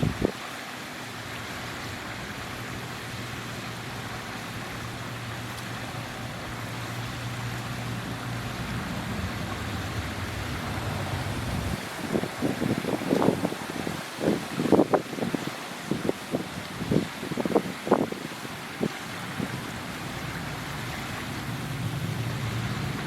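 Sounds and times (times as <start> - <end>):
distant engine hum: 0.0 - 23.0
outdoor hiss: 0.0 - 23.0.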